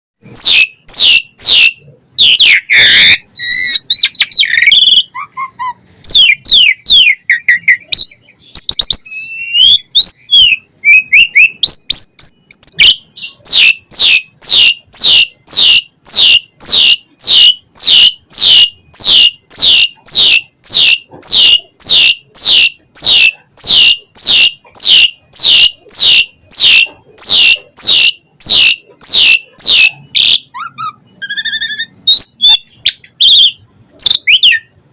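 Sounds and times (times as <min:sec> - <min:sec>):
starling singing: 0:00.2 - 0:34.9.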